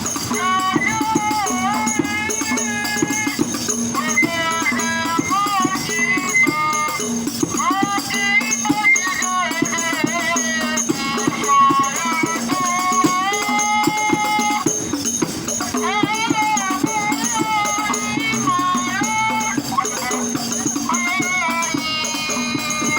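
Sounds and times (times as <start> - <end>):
frame drums and jingles: 0.0 - 22.9
person singing: 0.0 - 22.9.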